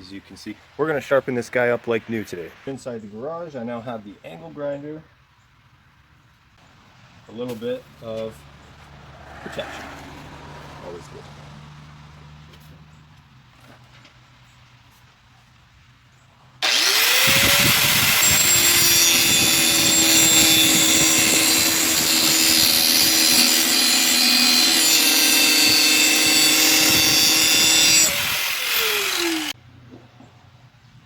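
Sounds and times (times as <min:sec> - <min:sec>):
angle grinder motor whine: 0:16.6 - 0:29.6
grinder grinding steel: 0:16.6 - 0:29.6.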